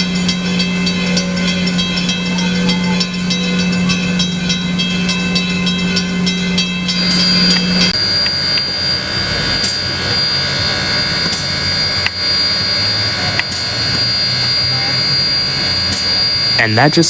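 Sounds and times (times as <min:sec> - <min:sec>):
high whine: 0:05.5 - 0:17.0.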